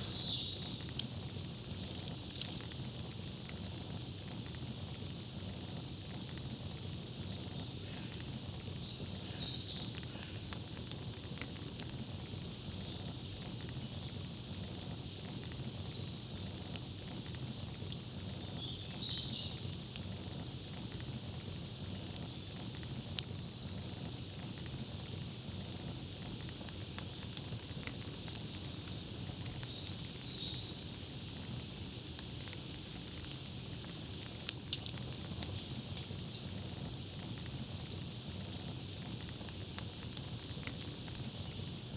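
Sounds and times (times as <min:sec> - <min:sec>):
bird chirping: 0:00.0 - 0:00.8, 0:29.6 - 0:30.8
campfire crackling: 0:00.0 - 0:41.9.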